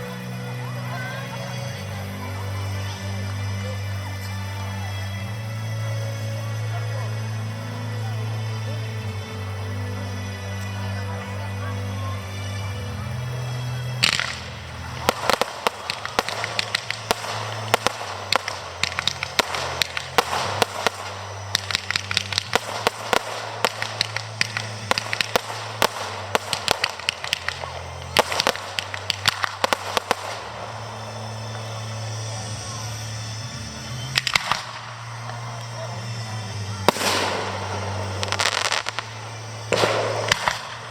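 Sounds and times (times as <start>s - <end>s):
fireworks crackling volleys: 0.0s - 40.9s
firework bang: 14.0s - 31.0s, 36.9s - 40.9s.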